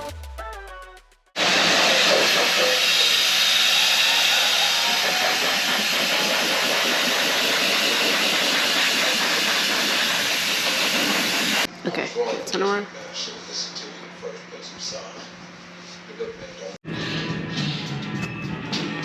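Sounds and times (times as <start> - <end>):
loud steady hiss: 1.4 - 11.7.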